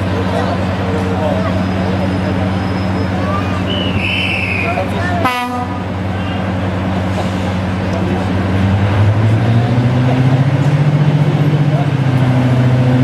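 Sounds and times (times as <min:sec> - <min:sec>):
diesel locomotive engine droning: 0:00.0 - 0:13.0
locomotive horn toot: 0:03.7 - 0:06.4.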